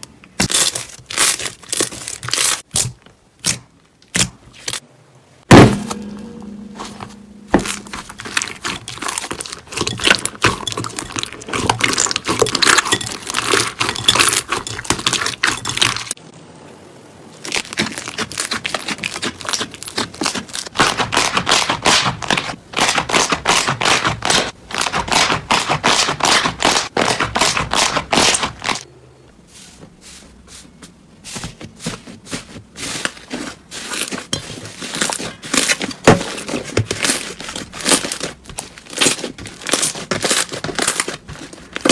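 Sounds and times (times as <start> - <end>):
slime crackling and popping: 17.4 - 27.9, 36.8 - 41.9.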